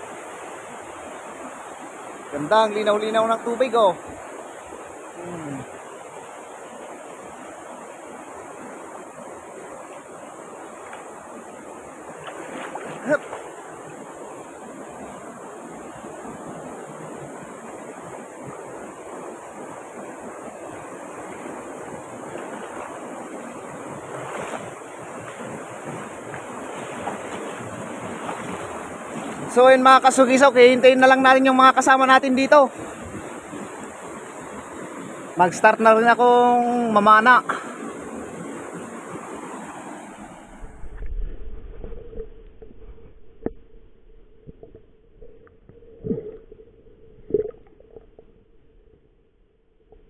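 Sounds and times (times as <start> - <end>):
stream rushing over boulders: 0.0 - 41.0
underwater rumble of water: 39.8 - 50.0.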